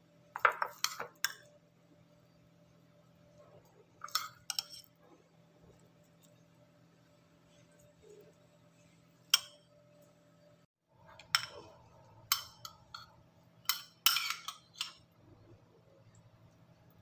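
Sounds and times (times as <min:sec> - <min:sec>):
faint steady hum: 0:00.0 - 0:17.0
kitchenware clinking and knocking: 0:00.4 - 0:01.3.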